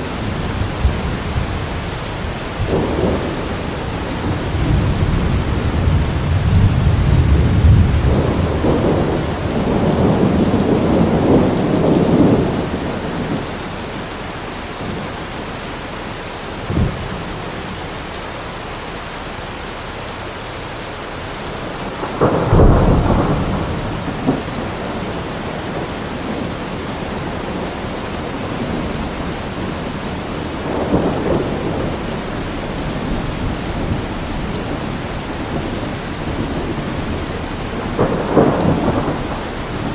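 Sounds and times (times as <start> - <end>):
rolling thunder: 0.0 - 14.1, 16.6 - 17.8, 21.4 - 39.9
heavy rain: 0.0 - 39.9
sharp thunder crack: 0.3 - 13.4, 21.9 - 26.5, 27.1 - 39.9.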